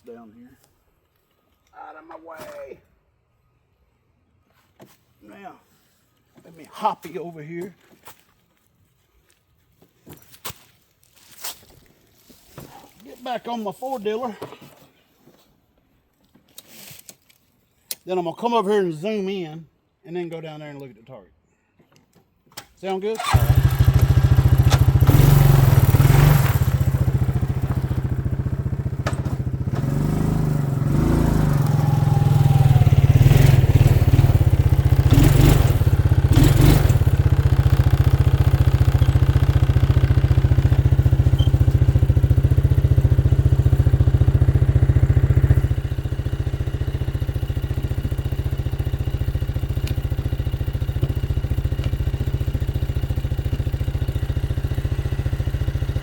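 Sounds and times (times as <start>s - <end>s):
atv engine running: 23.2s - 56.0s.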